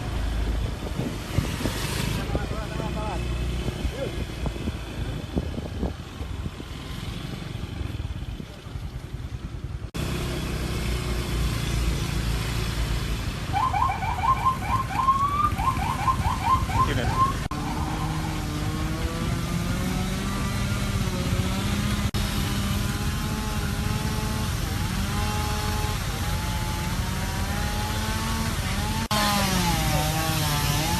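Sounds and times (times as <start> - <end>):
wind buffeting microphone: 0.3 - 2.6, 3.6 - 6.8.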